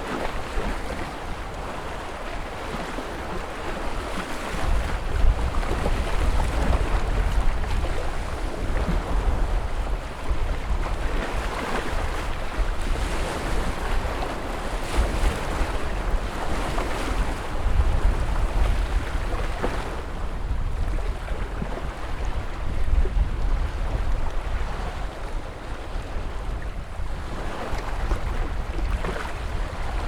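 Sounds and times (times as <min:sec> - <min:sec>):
waves breaking and washing in: 0:00.0 - 0:30.0.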